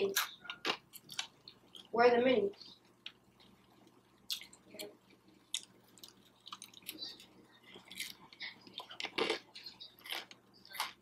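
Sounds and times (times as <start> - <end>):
person chewing food: 0.2 - 1.9, 2.7 - 11.0.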